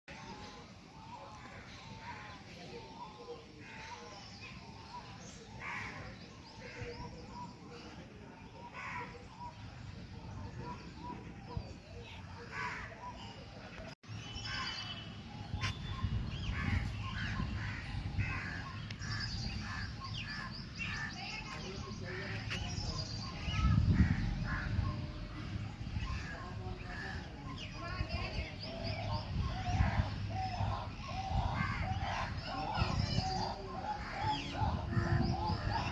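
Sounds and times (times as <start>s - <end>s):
birds calling and chirping: 0.1s - 35.9s.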